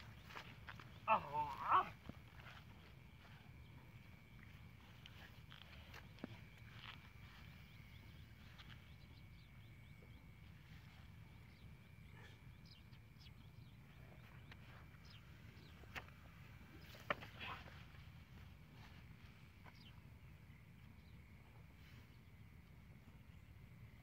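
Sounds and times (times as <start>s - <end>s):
faint chirps: 0.0s - 24.0s.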